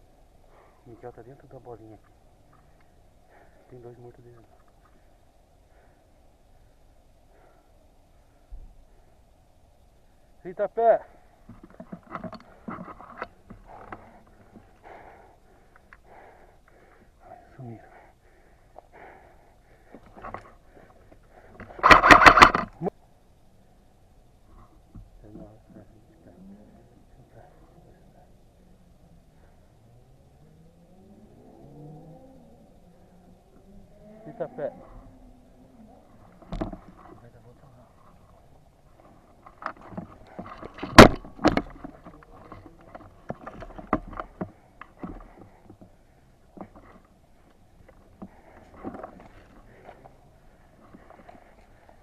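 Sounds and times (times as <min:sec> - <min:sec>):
faint rustling: 0:32.2 - 0:52.0.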